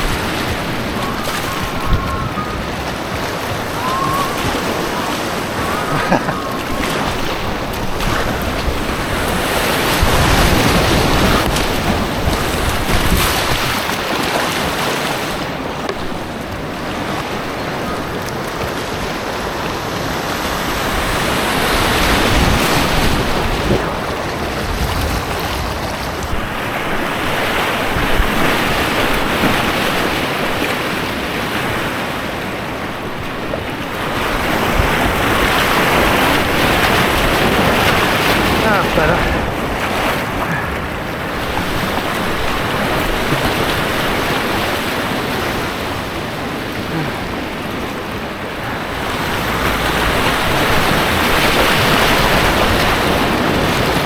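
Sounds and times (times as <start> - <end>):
rushing white water: 0.0 - 54.0.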